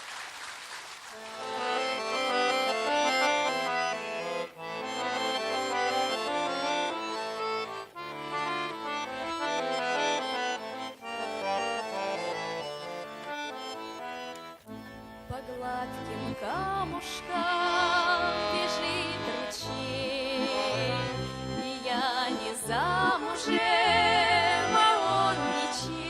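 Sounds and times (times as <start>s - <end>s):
accordion playing chords: 1.1s - 26.0s.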